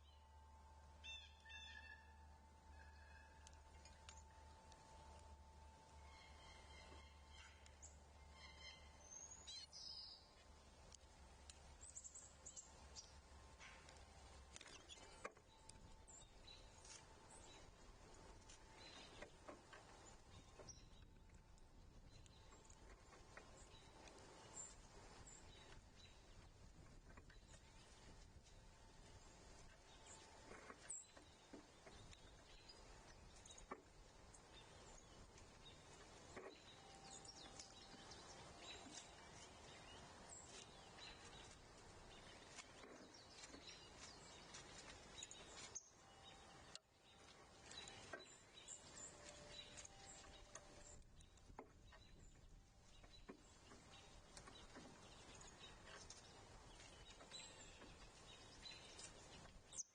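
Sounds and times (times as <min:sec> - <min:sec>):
distant bird chirps: 0:00.0 - 0:10.5, 0:11.4 - 0:59.9.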